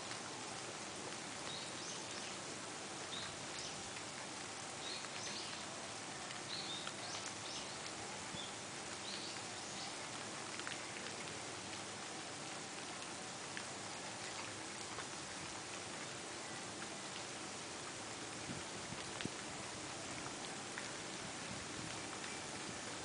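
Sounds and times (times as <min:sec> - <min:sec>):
outdoor hiss: 0:00.0 - 0:23.0
small birds chirping: 0:01.4 - 0:02.4, 0:03.1 - 0:03.8, 0:04.7 - 0:05.7, 0:06.4 - 0:10.1.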